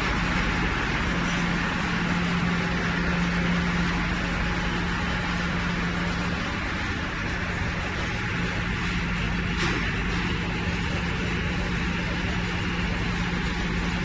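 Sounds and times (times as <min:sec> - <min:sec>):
low hum: 0:00.0 - 0:14.0
plant machinery running: 0:00.0 - 0:14.0.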